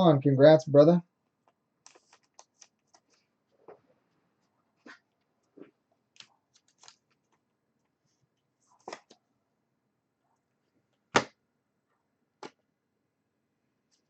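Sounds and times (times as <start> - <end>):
cards clicking and rustling: 1.4 - 3.2, 6.2 - 7.4, 8.8 - 9.2.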